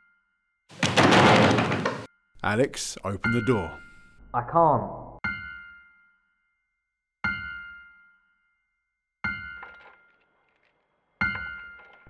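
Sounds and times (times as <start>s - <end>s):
bell-like chime: 3.1s - 4.2s.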